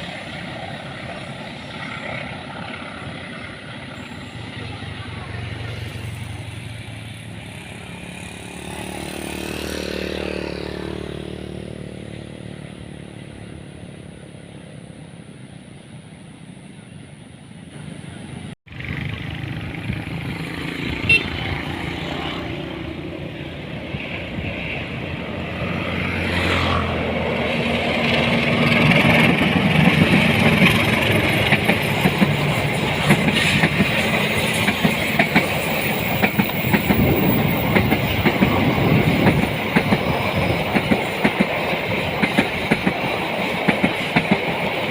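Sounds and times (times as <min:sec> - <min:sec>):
train wheels rumbling on rails: 0:00.0 - 0:44.9
vehicle passing by: 0:05.0 - 0:14.1, 0:18.7 - 0:28.6.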